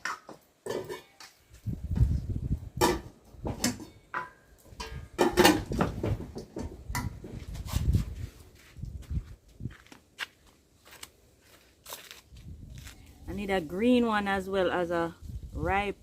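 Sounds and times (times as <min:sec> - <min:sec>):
wind buffeting microphone: 0:01.6 - 0:03.6, 0:04.8 - 0:09.9, 0:12.3 - 0:13.5, 0:15.2 - 0:16.0
footsteps crunching: 0:07.3 - 0:13.7.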